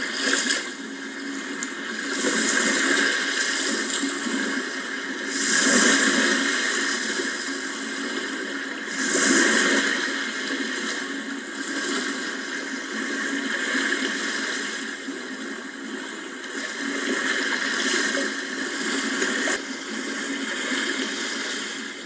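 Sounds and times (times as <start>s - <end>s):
sea waves washing ashore: 0.0s - 14.9s.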